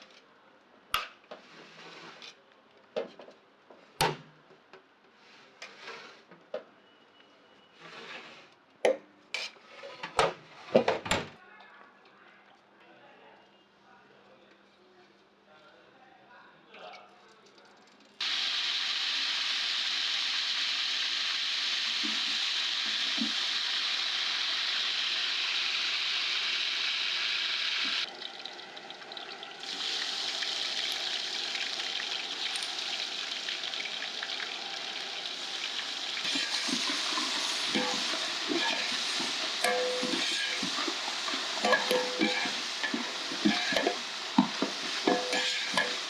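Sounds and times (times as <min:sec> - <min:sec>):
food sizzling in hot oil: 0:18.2 - 0:46.0.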